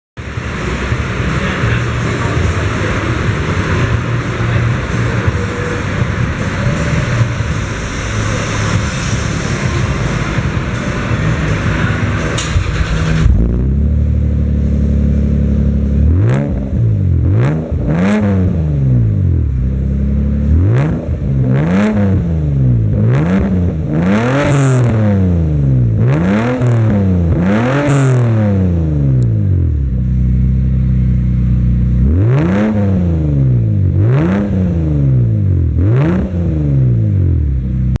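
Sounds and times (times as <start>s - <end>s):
car engine revving and idling: 0.2s - 38.0s.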